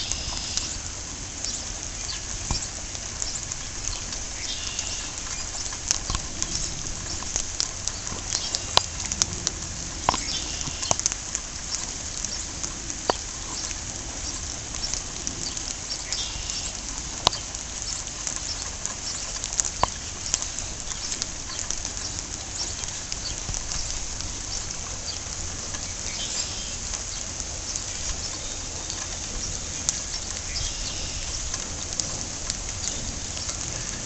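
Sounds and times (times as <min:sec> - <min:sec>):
steady rain pattering: 0:00.0 - 0:34.0
water drip ticks: 0:00.0 - 0:34.0.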